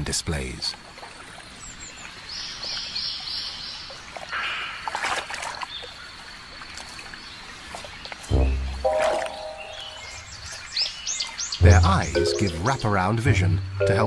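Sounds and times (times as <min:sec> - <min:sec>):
water trickling and splashing: 0:00.0 - 0:14.0
bird chirps: 0:08.3 - 0:14.0.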